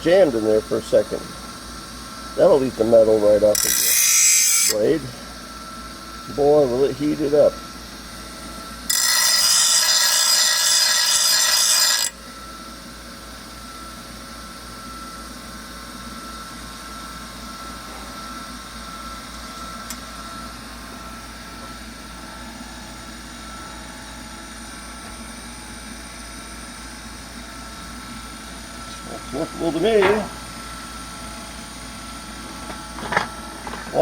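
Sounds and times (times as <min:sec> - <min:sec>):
grinder grinding steel: 0:02.4 - 0:05.1, 0:08.9 - 0:12.2, 0:28.8 - 0:30.6
grinder whining unloaded: 0:02.5 - 0:05.0, 0:08.4 - 0:12.5, 0:28.8 - 0:34.0.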